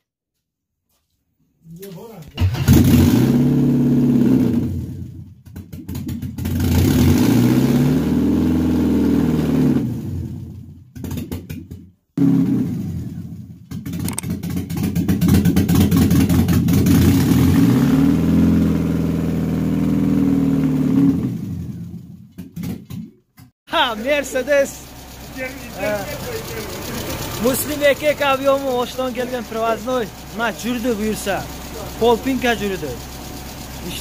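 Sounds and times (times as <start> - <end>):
car engine revving: 2.4 - 5.2, 6.5 - 10.4, 15.7 - 22.0, 24.0 - 34.0.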